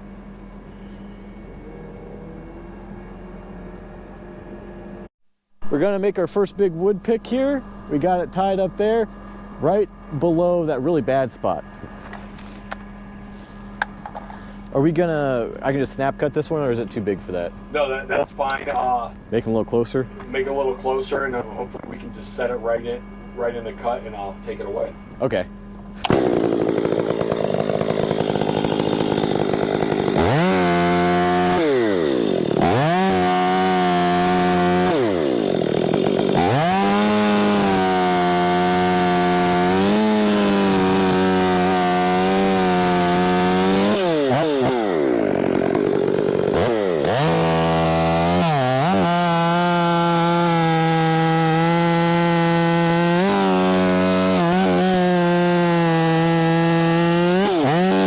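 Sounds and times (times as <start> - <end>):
chainsaw cutting wood: 26.0 - 58.0.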